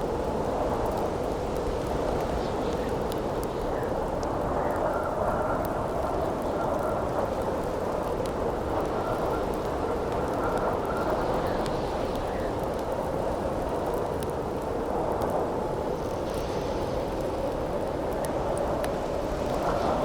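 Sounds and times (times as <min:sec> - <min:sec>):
campfire crackling and popping: 0:00.0 - 0:20.0
howling wind: 0:00.0 - 0:20.0.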